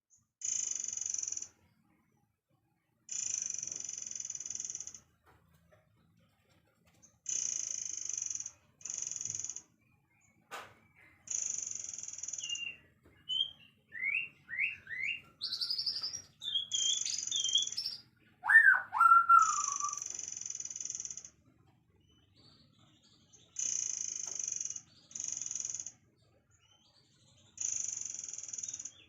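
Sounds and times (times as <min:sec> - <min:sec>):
songbirds singing: 0:00.1 - 0:29.0
swooping whistle: 0:18.5 - 0:20.0.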